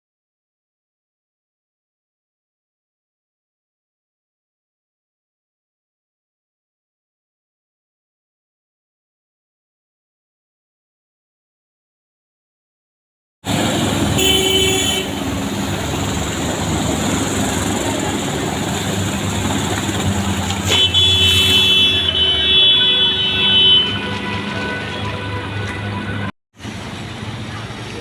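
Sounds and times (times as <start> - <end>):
road traffic: 13.4 - 28.0
vehicle horns: 14.0 - 15.4, 20.5 - 26.3.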